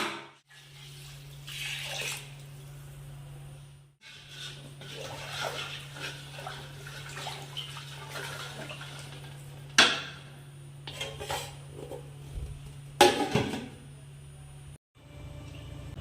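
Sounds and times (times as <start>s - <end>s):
steady low hum: 9.3s - 16.0s
kitchen utensils clattering: 10.9s - 12.1s, 13.0s - 13.8s.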